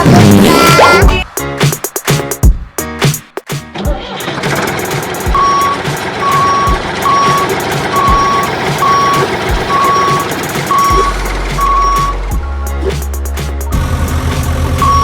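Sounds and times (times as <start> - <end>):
steady engine noise: 4.0 - 13.1, 13.8 - 15.0
reversing alarm beeping: 5.3 - 12.2, 14.8 - 15.0.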